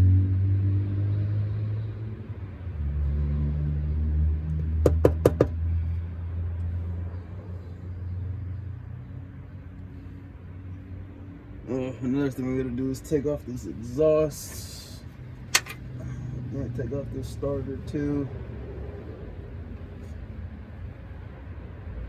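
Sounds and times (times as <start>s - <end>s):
quick sharp knocks: 4.9s - 5.6s.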